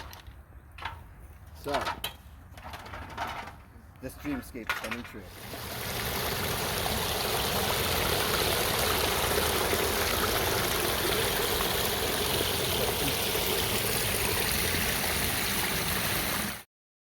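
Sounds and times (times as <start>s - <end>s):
water splashing over waterfall: 5.3s - 16.7s.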